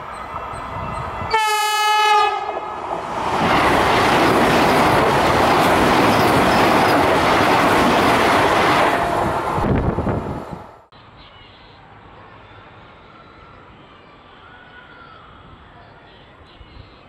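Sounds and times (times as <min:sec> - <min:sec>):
train horn: 0:01.3 - 0:02.8
train wheels rushing on rails: 0:02.4 - 0:10.8.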